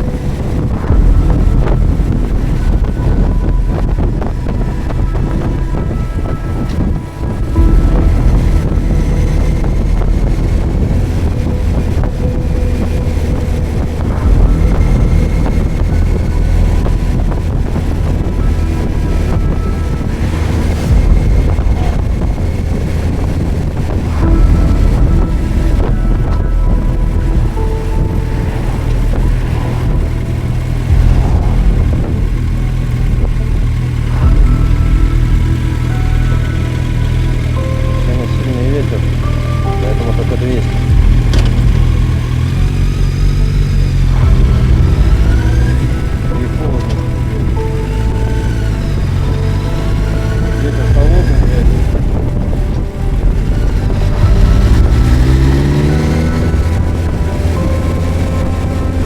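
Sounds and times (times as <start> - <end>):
motorcycle engine running: 0.0 - 59.0
rushing noise: 0.0 - 59.0
wind on microphone: 0.0 - 59.0.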